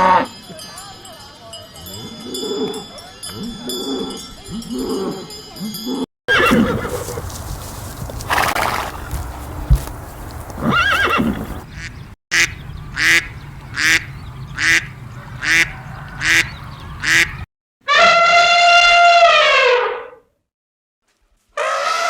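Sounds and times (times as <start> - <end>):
animal short calls: 6.3 - 11.6
horse whinnying: 6.3 - 11.6
long steady animal call: 6.3 - 12.0.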